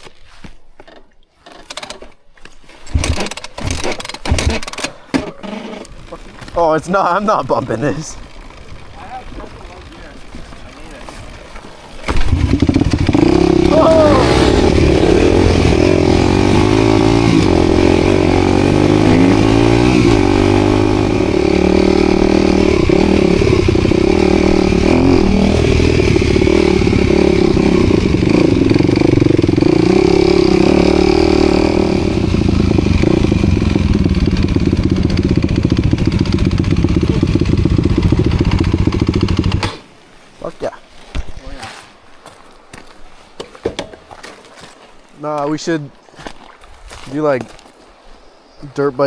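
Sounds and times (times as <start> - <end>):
dirt bike engine revving: 2.9 - 39.9.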